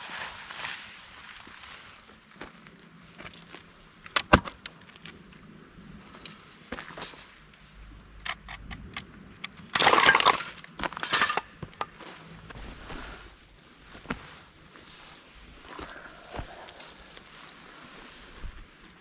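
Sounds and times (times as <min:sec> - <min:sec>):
rustling or scraping: 0:05.9 - 0:07.7, 0:09.8 - 0:19.0
hard objects clinking and knocking: 0:06.9 - 0:07.4, 0:09.6 - 0:12.0.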